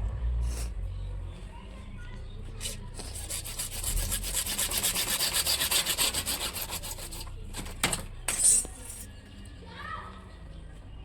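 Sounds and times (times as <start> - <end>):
hand tool rasping: 2.6 - 9.1.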